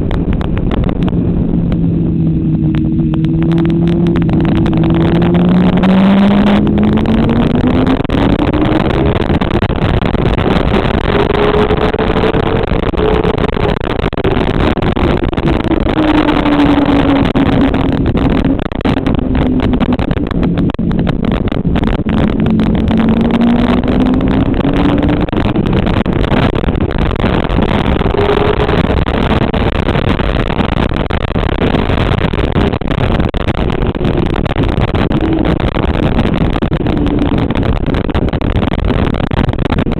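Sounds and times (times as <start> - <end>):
constant rush of noise: 0.0 - 39.9
motorcycle engine revving: 0.2 - 30.4.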